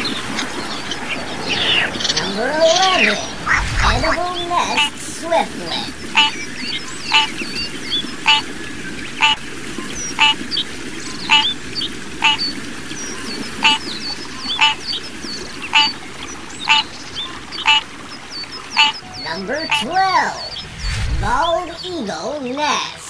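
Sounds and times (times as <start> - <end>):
bird call repeating: 6.1 - 7.4, 8.2 - 8.5, 9.2 - 9.4, 10.1 - 10.5, 11.2 - 11.6, 12.2 - 12.5, 13.6 - 14.9, 15.7 - 16.0, 16.6 - 17.0, 17.6 - 17.9, 18.7 - 20.7
faint high bird chirps: 6.1 - 8.5, 9.2 - 10.4, 12.2 - 16.0, 16.6 - 21.9.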